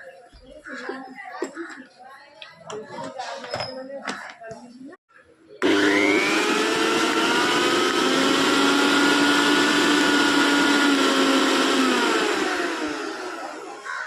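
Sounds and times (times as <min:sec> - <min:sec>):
mixer grinder motor whine: 0:05.6 - 0:14.0.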